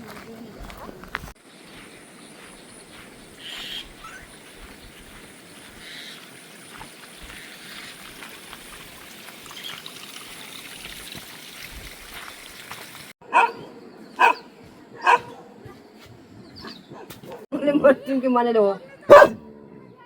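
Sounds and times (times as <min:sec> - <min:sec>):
trickle of running water: 0:04.4 - 0:13.2.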